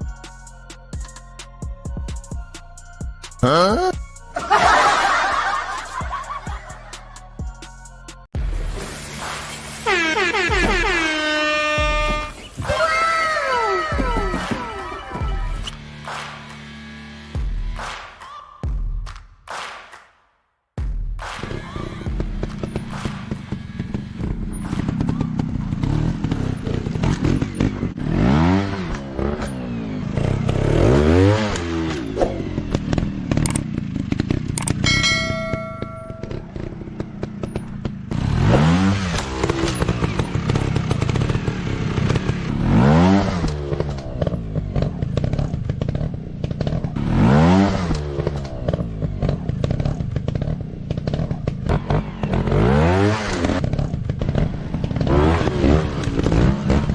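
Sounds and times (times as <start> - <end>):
dirt bike engines revving: 3.4 - 7.2, 9.5 - 17.1, 21.6 - 56.9
bikes rattling over rough ground: 21.9 - 28.0, 31.6 - 56.9.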